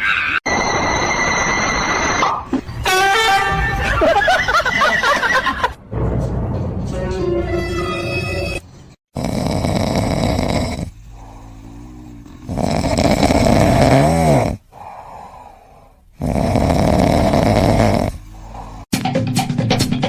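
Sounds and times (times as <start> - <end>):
pet snoring: 9.1 - 15.0, 16.2 - 18.9
quiet breathing: 9.6 - 13.7, 14.6 - 18.9.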